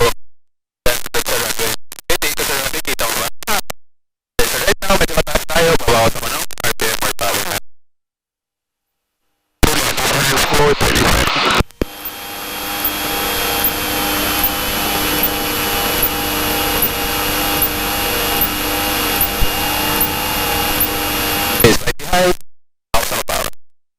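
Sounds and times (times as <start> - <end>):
cabin airflow noise: 11.8 - 21.6
propeller plane engine drone: 11.8 - 21.6.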